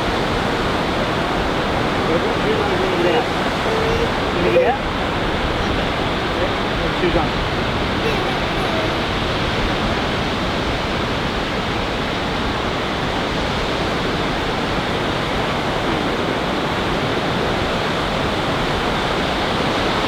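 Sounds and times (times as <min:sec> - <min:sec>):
ocean surf breaking: 0:00.0 - 0:10.3.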